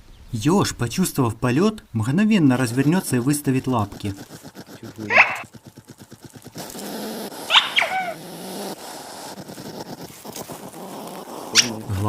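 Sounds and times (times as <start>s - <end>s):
animal squeaking: 2.4s - 12.0s.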